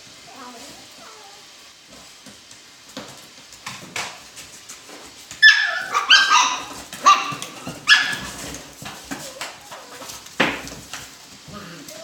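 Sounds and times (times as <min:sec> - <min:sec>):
puppies yipping and barking: 0:05.4 - 0:10.2.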